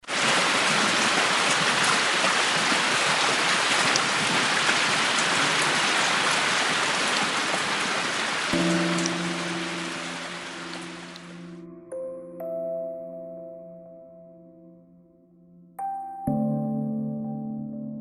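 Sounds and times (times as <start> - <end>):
steady rain hiss: 0.0 - 11.6
held music chord: 8.6 - 18.0.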